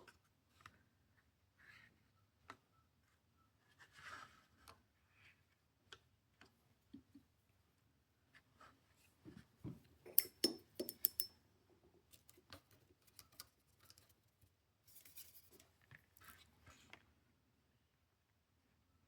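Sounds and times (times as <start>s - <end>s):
small clicks and taps: 10.1s - 11.3s.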